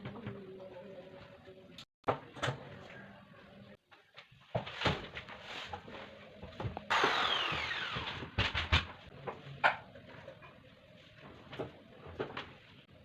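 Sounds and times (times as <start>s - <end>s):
power tool winding down: 6.9s - 8.3s.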